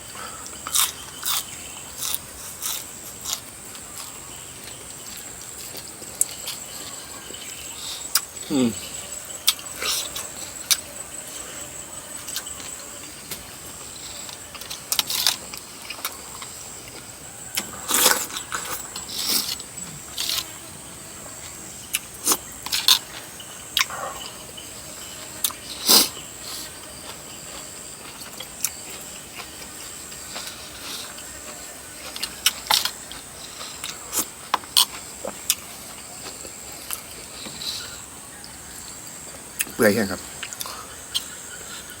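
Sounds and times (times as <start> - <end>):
person eating: 0.3 - 11.4, 13.7 - 20.6, 25.4 - 38.0, 40.4 - 42.0.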